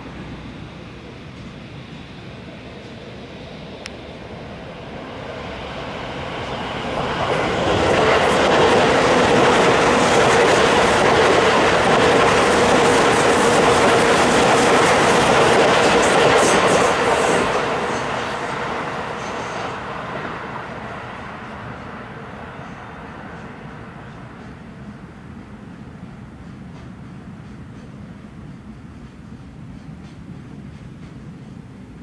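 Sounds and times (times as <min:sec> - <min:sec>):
electric train passing: 0:00.0 - 0:32.0
wheels clattering on rails: 0:06.4 - 0:19.7, 0:26.4 - 0:31.9.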